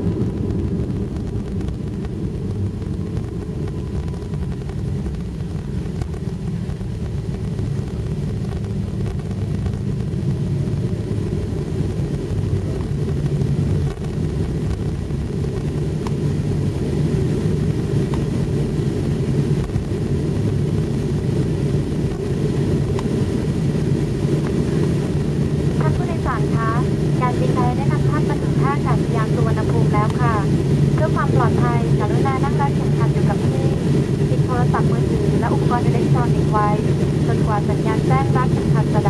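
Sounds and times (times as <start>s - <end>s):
airliner cabin engine rumble: 0.0s - 39.0s.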